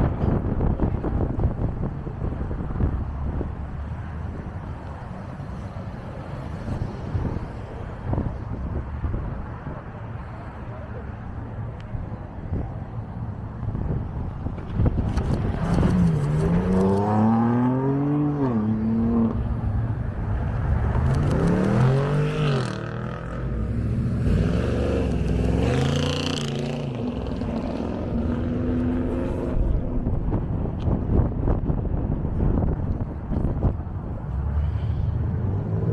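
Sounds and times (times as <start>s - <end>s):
wind noise on microphone: 0.0s - 35.9s
car engines revving: 13.0s - 31.4s, 33.9s - 35.9s.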